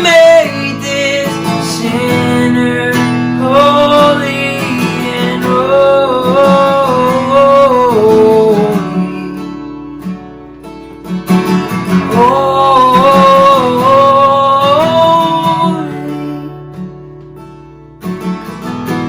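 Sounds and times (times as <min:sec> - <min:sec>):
person singing: 0:00.0 - 0:09.5, 0:11.8 - 0:16.6
strummed acoustic guitar: 0:00.0 - 0:19.0.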